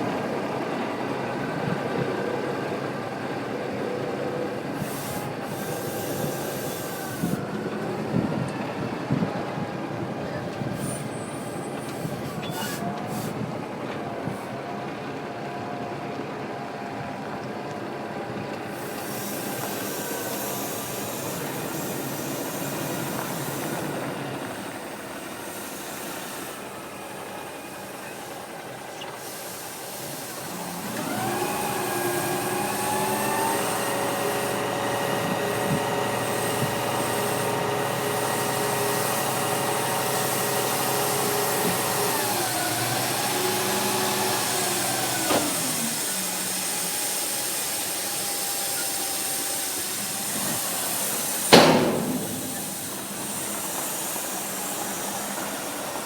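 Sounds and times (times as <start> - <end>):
steady hiss: 49.0 - 56.0.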